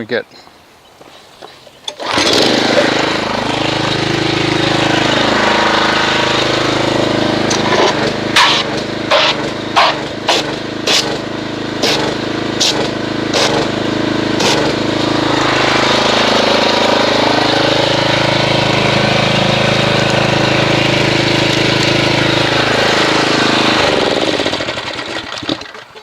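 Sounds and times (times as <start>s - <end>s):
pressure washer running: 1.9s - 26.0s
water spraying into bucket: 2.0s - 11.2s.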